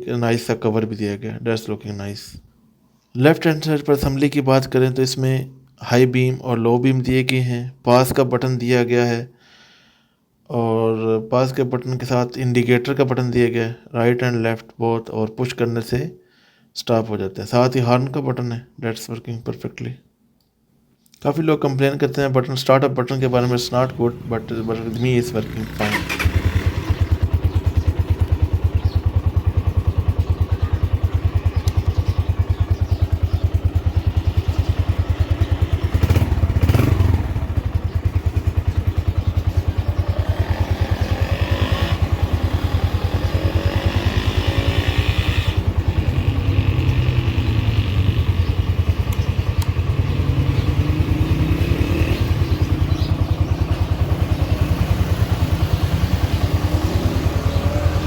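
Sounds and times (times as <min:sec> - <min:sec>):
motorcycle engine idling and revving: 0:23.6 - 0:58.0.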